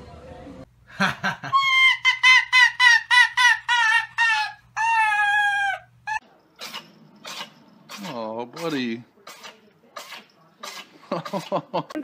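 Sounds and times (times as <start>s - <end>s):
fox yelping: 1.6s - 7.6s.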